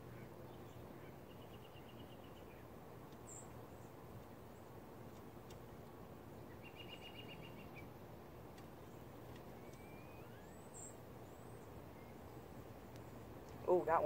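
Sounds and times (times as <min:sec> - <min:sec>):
faint background hiss: 0:00.0 - 0:14.0
songbird trill: 0:00.0 - 0:14.0
faint rising whistle: 0:09.8 - 0:10.7.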